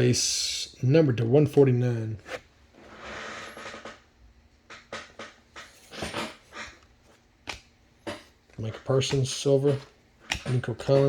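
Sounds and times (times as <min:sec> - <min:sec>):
cards sliding and flicking: 0:05.7 - 0:07.8.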